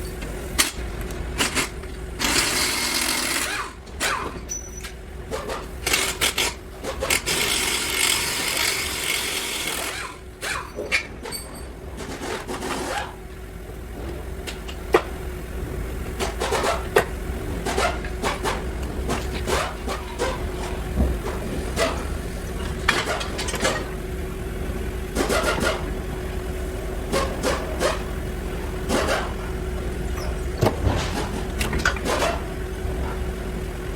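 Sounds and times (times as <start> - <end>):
tools scraping car parts: 1.4 - 13.2, 16.2 - 24.0, 25.2 - 25.9, 27.1 - 28.1, 28.8 - 33.2.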